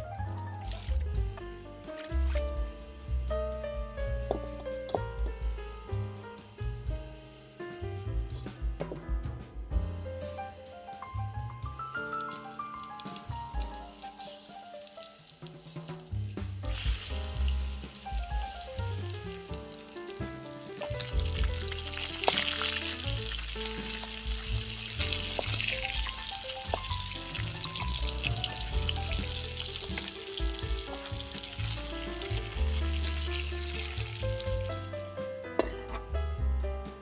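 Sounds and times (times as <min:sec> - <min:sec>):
background music: 0:00.0 - 0:37.0
food sizzling in hot oil: 0:11.7 - 0:36.0.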